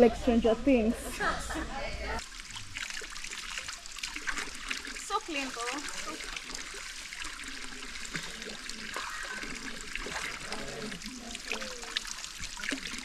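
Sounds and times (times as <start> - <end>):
stream flowing over rocks: 2.2 - 13.0
faint voices: 8.2 - 13.0.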